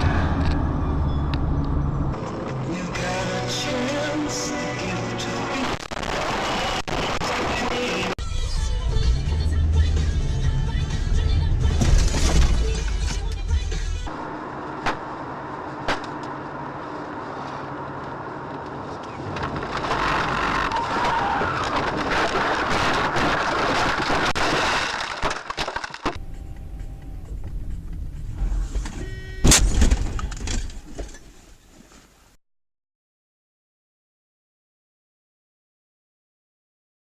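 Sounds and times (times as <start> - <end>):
car road and engine noise: 0.0 - 32.3
short loud bang: 29.0 - 30.5.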